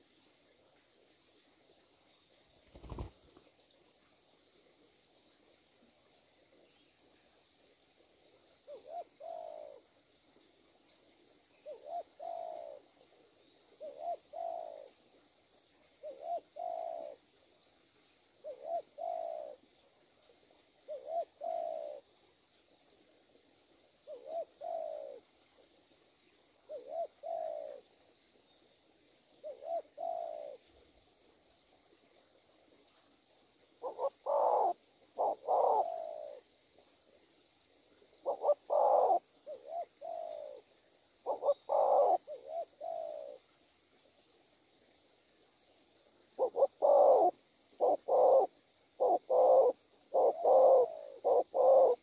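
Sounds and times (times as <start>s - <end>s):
dove cooing: 8.0s - 9.9s, 11.6s - 13.1s, 13.7s - 15.0s, 16.0s - 17.3s, 18.4s - 19.7s, 20.8s - 22.1s, 24.0s - 25.7s, 26.6s - 27.9s, 29.4s - 30.8s, 33.8s - 36.5s, 38.2s - 43.4s, 46.4s - 52.0s.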